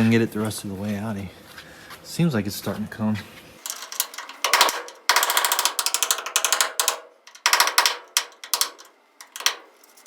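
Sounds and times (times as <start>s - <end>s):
switch clicking and rattling: 3.6s - 9.7s.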